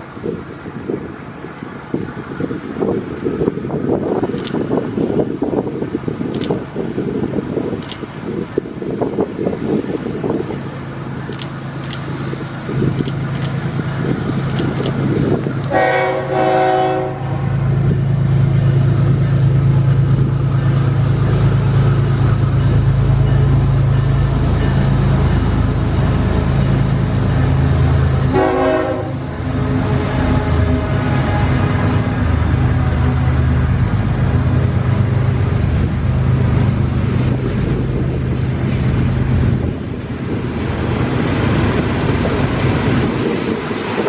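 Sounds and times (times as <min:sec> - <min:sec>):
diesel locomotive engines: 0:00.0 - 0:44.0
train air horn: 0:15.7 - 0:17.6, 0:28.3 - 0:32.1.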